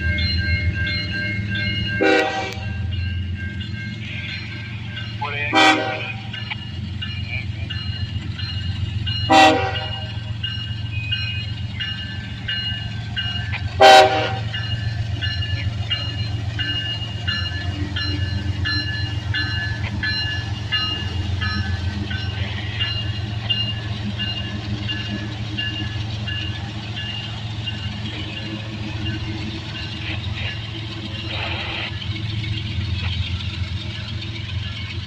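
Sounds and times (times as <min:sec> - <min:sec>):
diesel locomotive running: 0:00.0 - 0:35.0
train horn toot: 0:02.0 - 0:02.8, 0:05.5 - 0:06.2, 0:09.3 - 0:10.2, 0:13.8 - 0:14.5.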